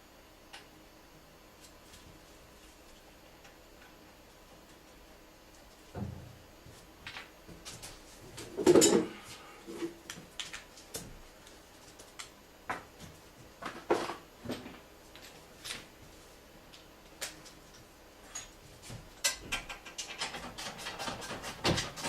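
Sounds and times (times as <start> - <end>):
tools and parts clinking: 8.6 - 9.2.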